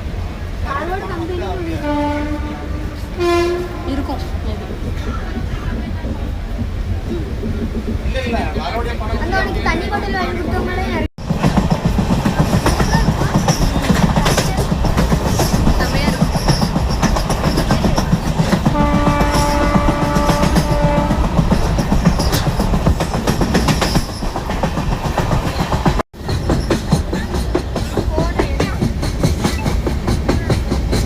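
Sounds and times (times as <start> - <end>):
train rumbling and rattling: 0.0 - 31.0
train horn: 1.7 - 4.3, 18.7 - 21.4.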